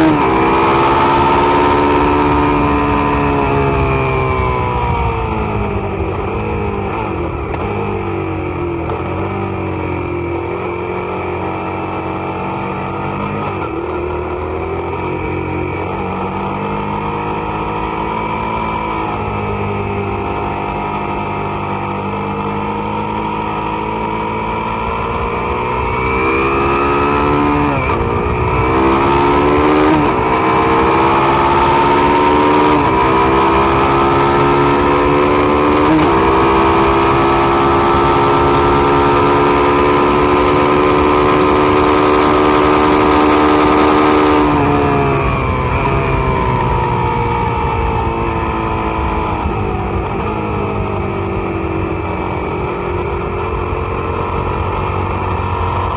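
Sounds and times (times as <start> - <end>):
motorcycle engine at speed: 0.0 - 55.9.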